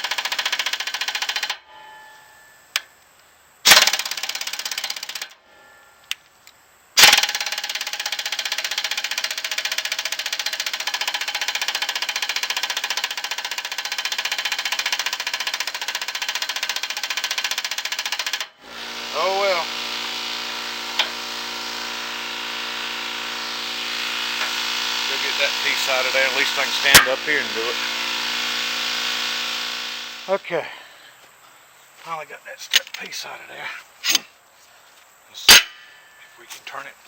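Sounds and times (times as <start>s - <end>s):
pneumatic impact wrench hammering: 0.0s - 1.6s, 3.6s - 5.4s, 7.0s - 30.4s, 35.5s - 35.9s.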